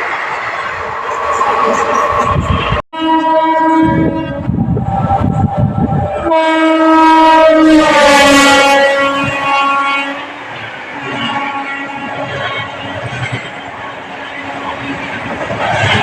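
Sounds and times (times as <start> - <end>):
train rumbling at speed: 0.0 - 16.0
locomotive horn blasts: 3.0 - 4.5, 6.2 - 10.4, 11.2 - 12.1.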